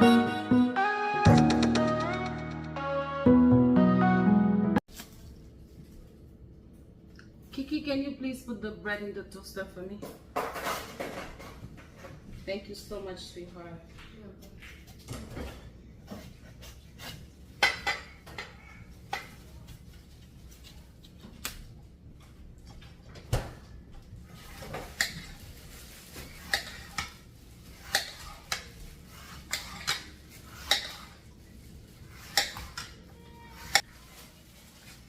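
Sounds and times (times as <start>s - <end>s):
dishes and cutlery clinking: 27.8s - 31.2s.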